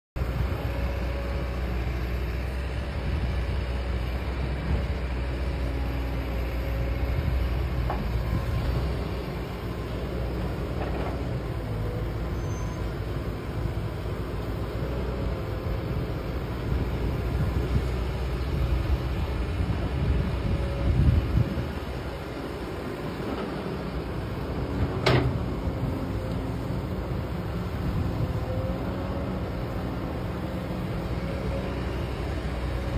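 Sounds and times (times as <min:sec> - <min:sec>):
excavator diesel engine running: 0:00.2 - 0:32.9
faint hydraulic whine: 0:03.7 - 0:16.0.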